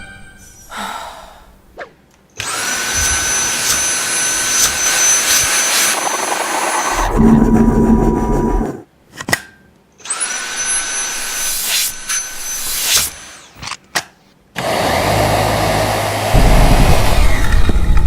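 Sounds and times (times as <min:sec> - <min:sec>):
handheld vacuum motor whining: 0:02.4 - 0:07.5, 0:10.1 - 0:13.5, 0:14.6 - 0:18.0.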